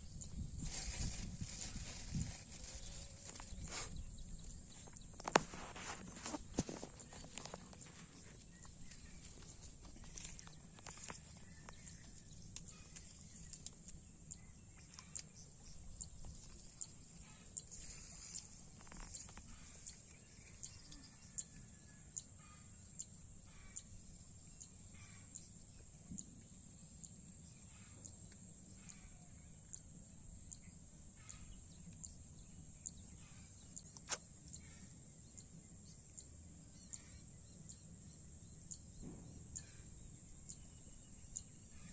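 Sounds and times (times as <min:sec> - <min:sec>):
high-pitched whine: 0:33.9 - 0:41.9.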